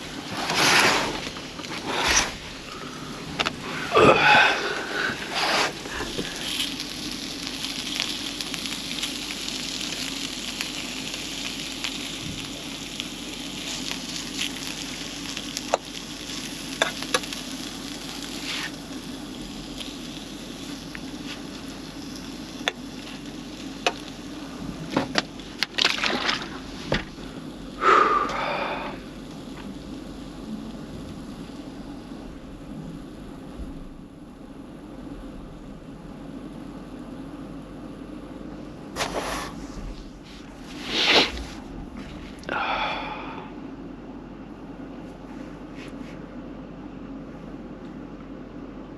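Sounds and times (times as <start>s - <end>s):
food sizzling in a frying pan: 0.0s - 32.2s
steady low hum: 0.0s - 48.9s.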